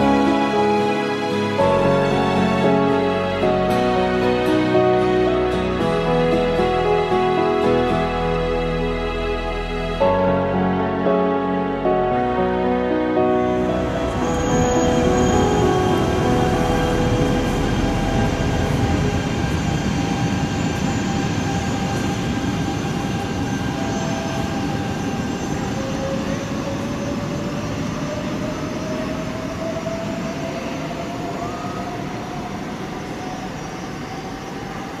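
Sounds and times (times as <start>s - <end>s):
train running noise: 13.5s - 35.0s.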